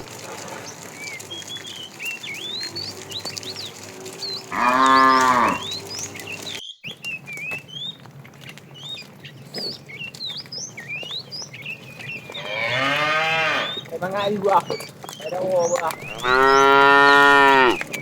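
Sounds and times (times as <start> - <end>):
cow mooing: 3.0 - 6.2, 12.2 - 14.2, 15.8 - 17.8.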